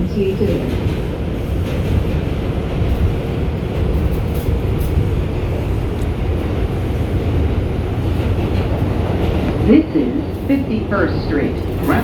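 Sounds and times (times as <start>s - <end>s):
subway car wheels rumbling: 0.0s - 12.0s
train motors: 0.0s - 12.0s.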